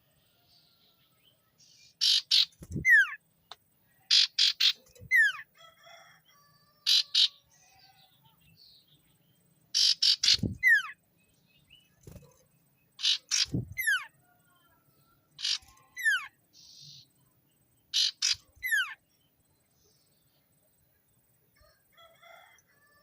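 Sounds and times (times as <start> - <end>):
songbird calling: 0.8 - 5.5, 6.8 - 14.2, 15.3 - 17.2, 17.8 - 20.5.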